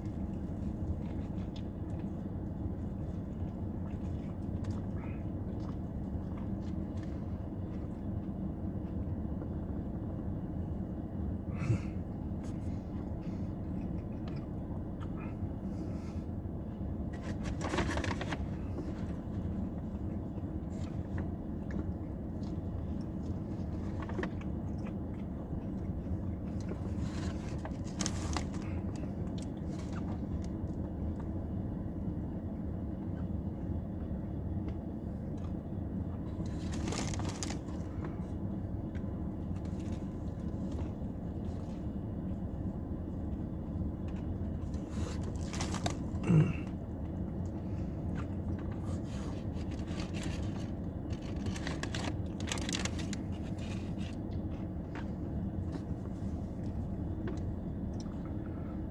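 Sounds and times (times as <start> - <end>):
low background hum: 0.0 - 58.9
sandwich crunching: 36.2 - 56.0.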